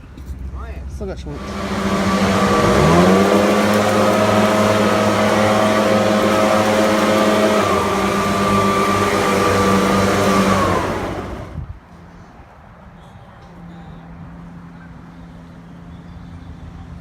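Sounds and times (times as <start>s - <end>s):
leaf blower whining: 1.3s - 11.6s.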